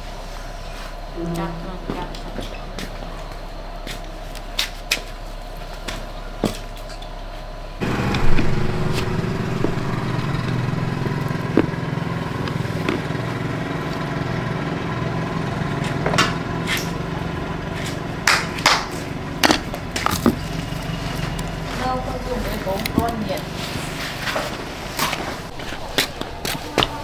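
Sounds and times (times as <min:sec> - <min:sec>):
motorcycle engine idling: 0:07.8 - 0:27.0.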